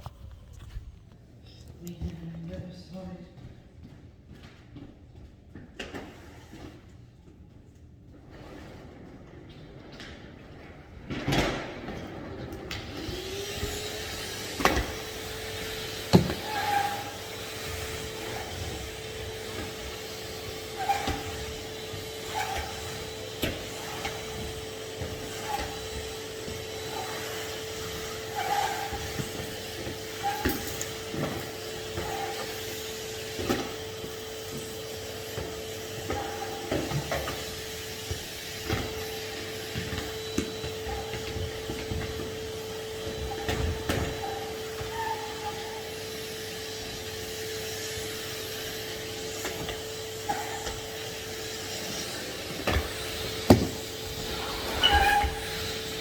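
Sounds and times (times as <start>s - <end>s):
vacuum cleaner motor humming: 11.0s - 56.0s
vacuum hose knocking on floor: 53.5s - 53.9s.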